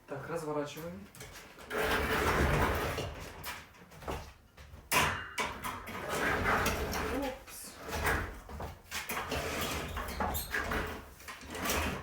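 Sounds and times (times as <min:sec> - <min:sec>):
refrigerator scraping on floor: 0:05.9 - 0:08.5, 0:09.1 - 0:12.0.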